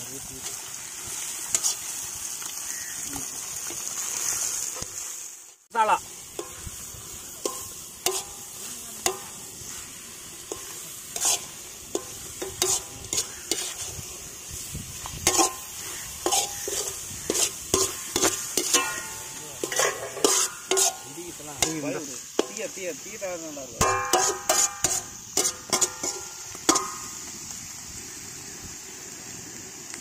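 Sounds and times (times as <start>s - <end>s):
food sizzling in iron pan: 0.0s - 30.0s
metal ladle scraping pan: 1.5s - 1.9s, 6.3s - 22.6s, 23.8s - 27.2s.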